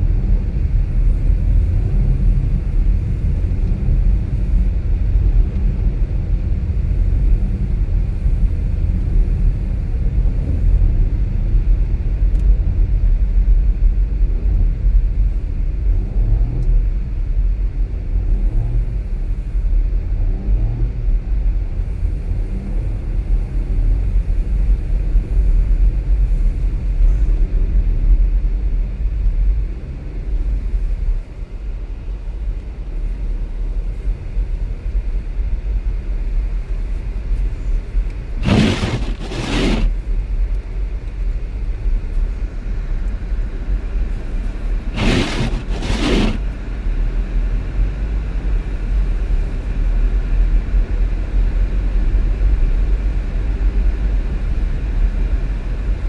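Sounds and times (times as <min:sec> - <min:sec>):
car driving on snowy road: 0:00.0 - 0:56.0
brief noisy sounds: 0:38.4 - 0:39.9, 0:44.9 - 0:46.4.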